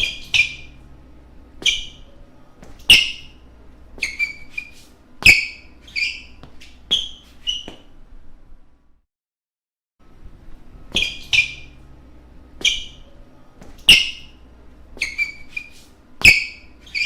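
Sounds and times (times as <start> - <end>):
shoes squeaking on wooden court: 0.0 - 0.8, 1.6 - 8.0, 10.9 - 11.8, 12.6 - 17.0.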